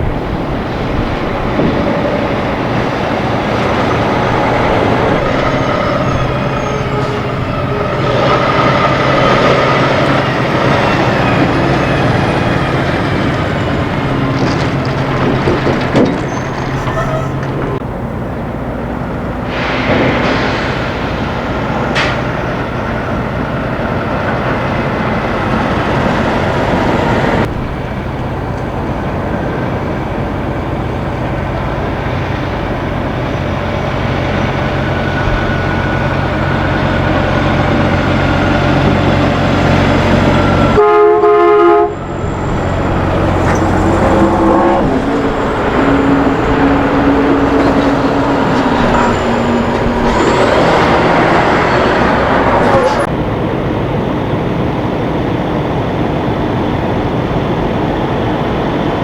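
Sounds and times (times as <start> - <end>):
trucks passing: 0.0 - 59.0
truck horn blast: 16.6 - 17.8, 40.2 - 53.0.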